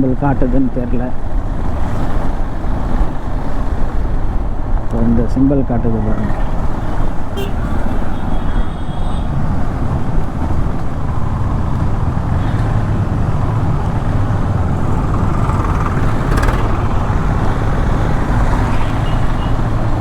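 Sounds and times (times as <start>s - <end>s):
wind and road noise: 0.0s - 20.0s
motorcycle engine cruising: 6.1s - 20.0s.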